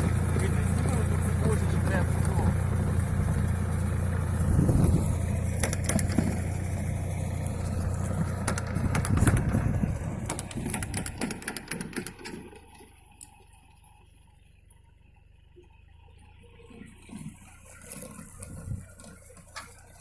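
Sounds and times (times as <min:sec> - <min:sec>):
tractor engine running: 0:00.0 - 0:20.0
clicks and knocks: 0:10.3 - 0:12.4.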